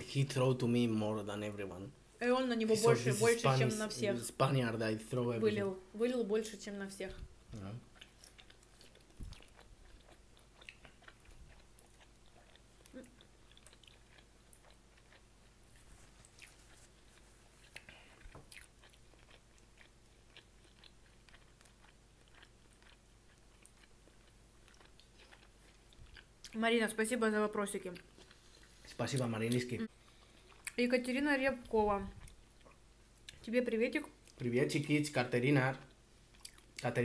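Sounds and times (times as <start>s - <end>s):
people chewing: 7.6s - 26.6s, 27.7s - 30.8s, 31.6s - 33.4s, 35.8s - 37.0s.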